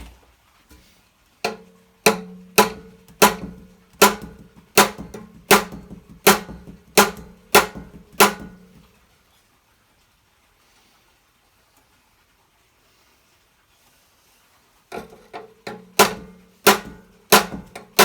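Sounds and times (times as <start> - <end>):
hammer striking metal: 1.5 - 8.9, 15.7 - 18.0.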